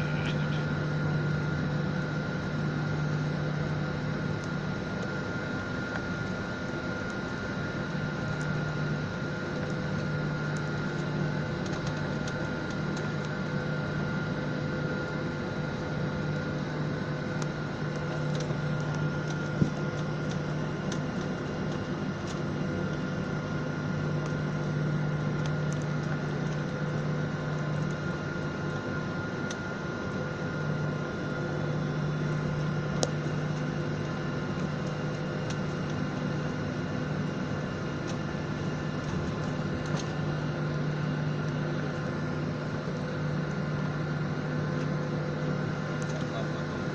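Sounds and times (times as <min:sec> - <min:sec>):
airliner cabin engine drone: 0:00.0 - 0:46.9.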